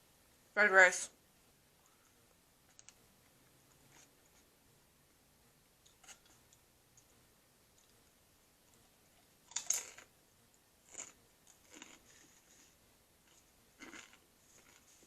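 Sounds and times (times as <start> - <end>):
person chewing: 8.7 - 10.1, 10.8 - 12.7, 13.3 - 15.0.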